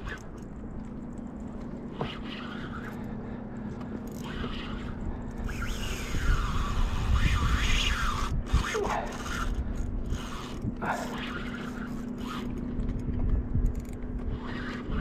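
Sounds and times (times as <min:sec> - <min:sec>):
fishing reel drag screaming: 0:01.9 - 0:03.2, 0:04.0 - 0:12.6, 0:14.3 - 0:15.0.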